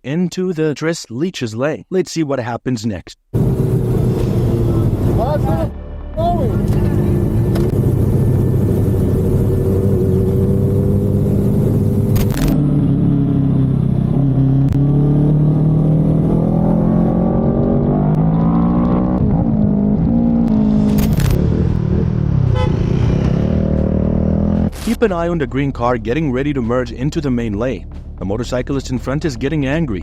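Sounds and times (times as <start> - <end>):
motorcycle engine accelerating: 3.4 - 24.9
wind and road noise: 3.4 - 26.8.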